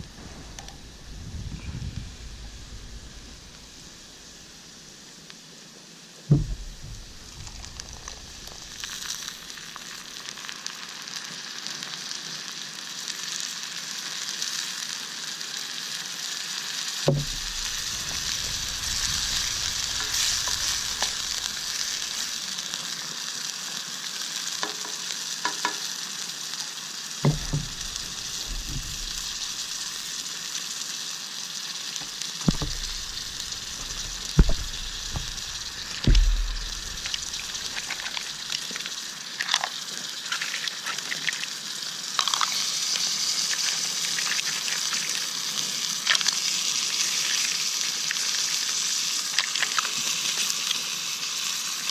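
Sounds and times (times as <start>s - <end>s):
food sizzling in oil: 0.0s - 51.9s
dull knocks: 6.3s - 8.8s, 17.1s - 21.7s, 27.3s - 29.5s, 32.5s - 37.9s.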